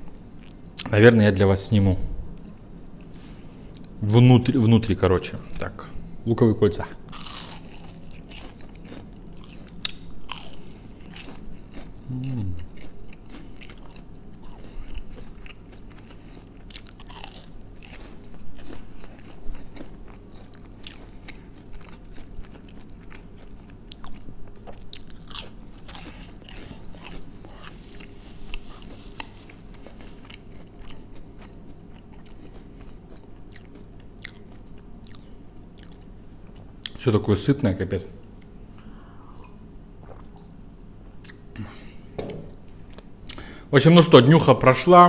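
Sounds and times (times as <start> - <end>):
crunching onion rings: 7.1 - 36.1.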